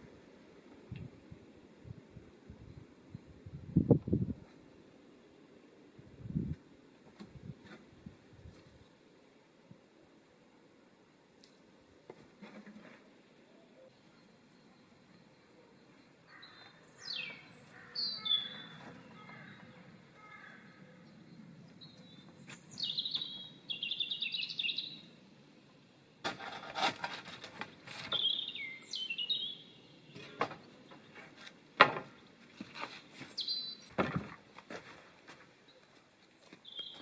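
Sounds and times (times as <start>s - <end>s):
bird trill: 13.8s - 25.1s, 28.1s - 30.2s, 33.3s - 33.9s, 36.6s - 37.0s
birds whistling: 16.4s - 19.6s, 21.0s - 25.1s, 28.1s - 30.3s, 33.3s - 34.0s, 36.6s - 37.0s.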